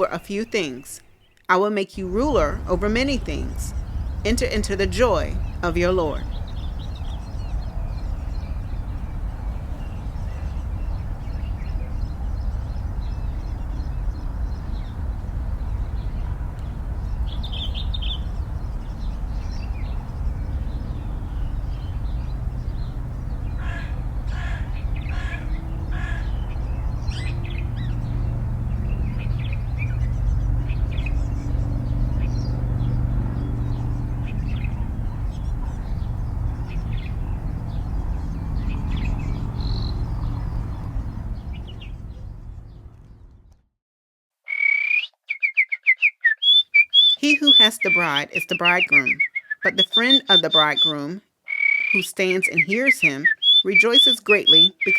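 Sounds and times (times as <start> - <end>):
bird calls: 0.0 - 43.3, 44.5 - 54.9
low steady hum: 2.0 - 43.6
low wind-like rumble: 2.0 - 43.6.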